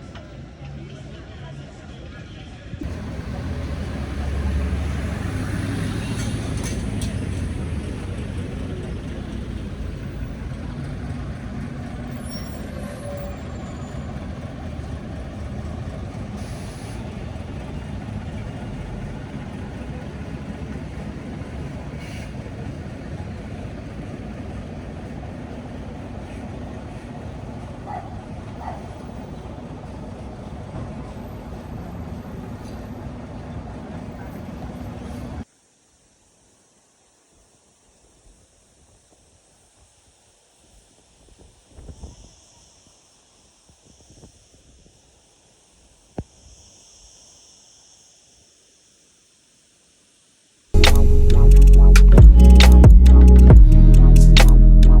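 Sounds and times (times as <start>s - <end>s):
traffic: 0.0s - 35.5s, 50.8s - 55.0s
heavy vehicle rumbling past: 2.8s - 35.4s.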